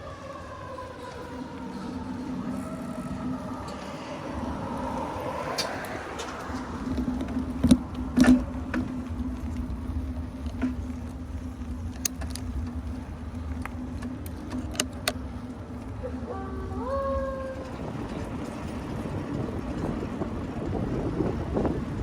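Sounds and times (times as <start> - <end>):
bike tyres and drivetrain humming: 0.0 - 22.0
bike clicks and rattles: 0.9 - 22.0.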